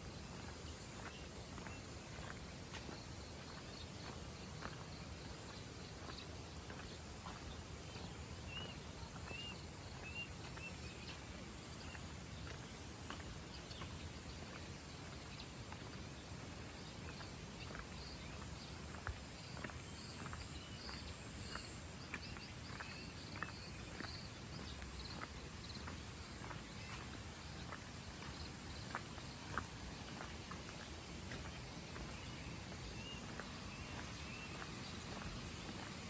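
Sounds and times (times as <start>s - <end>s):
bird chirping: 0.0s - 36.0s
soft footsteps: 0.0s - 36.0s.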